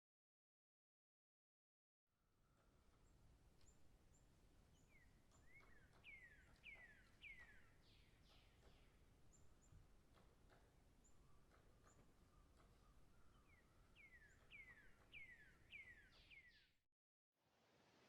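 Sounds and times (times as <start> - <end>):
high bird chirps: 4.8 - 9.8, 11.0 - 16.7.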